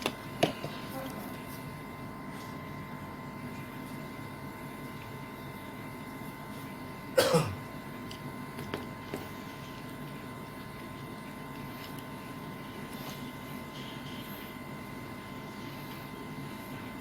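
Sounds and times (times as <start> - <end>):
background hum: 0.0 - 17.0
person coughing: 7.2 - 7.6.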